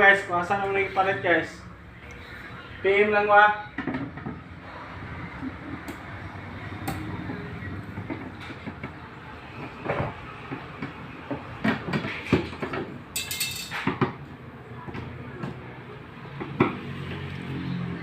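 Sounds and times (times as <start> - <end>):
knocks and clatter of metal parts: 9.6 - 14.2.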